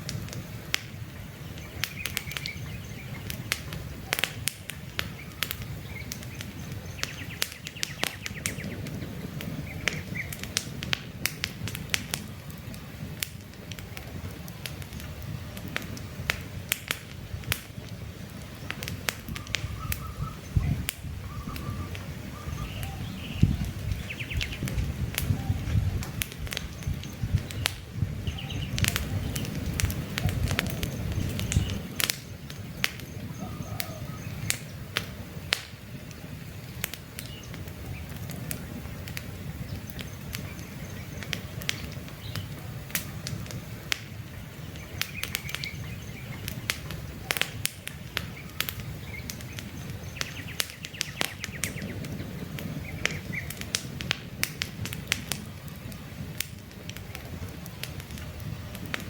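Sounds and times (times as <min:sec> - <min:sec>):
campfire crackling and popping: 0:00.0 - 0:59.0
low rumble of flame: 0:00.0 - 0:59.0
faint birds chirping: 0:00.9 - 0:10.6, 0:17.3 - 0:53.7.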